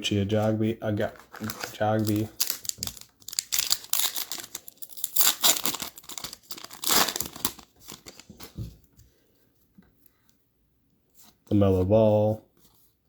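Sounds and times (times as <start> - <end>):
foil wrapper tearing and crinkling: 1.3 - 8.3.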